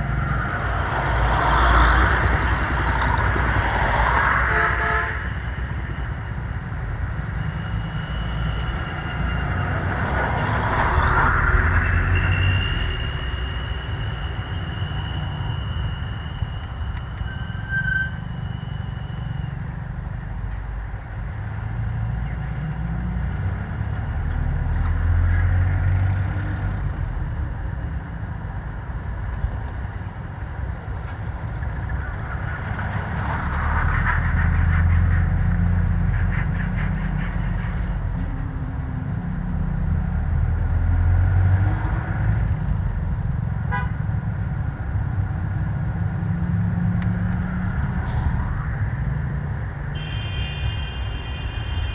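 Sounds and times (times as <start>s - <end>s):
vehicles passing: 0.0s - 51.9s
car horns tooting: 4.2s - 6.0s, 43.7s - 44.0s, 49.9s - 51.9s.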